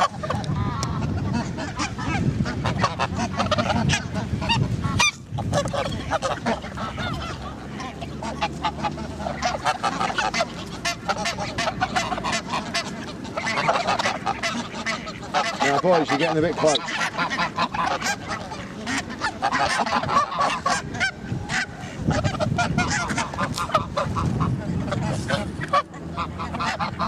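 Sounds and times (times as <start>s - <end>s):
geese honking: 0.0s - 27.0s.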